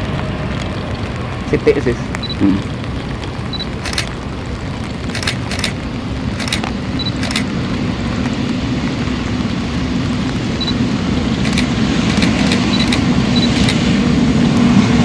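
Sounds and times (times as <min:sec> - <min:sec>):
jet engines rumbling: 0:00.0 - 0:15.0
short crackles: 0:00.5 - 0:07.6, 0:11.3 - 0:13.9.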